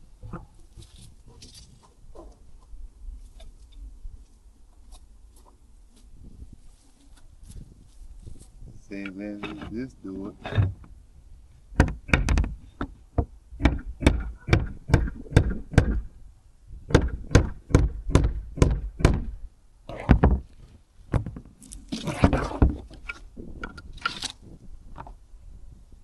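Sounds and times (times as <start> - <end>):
rough scraping: 21.6 - 24.6.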